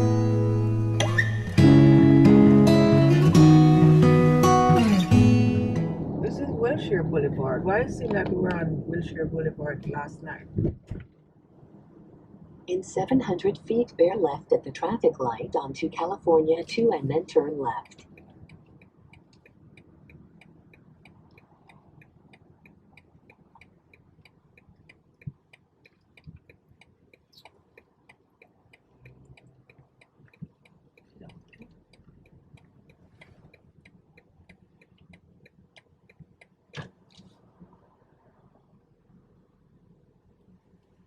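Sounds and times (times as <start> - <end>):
soft thumps: 10.6 - 11.2
turn signal ticking: 12.8 - 38.0.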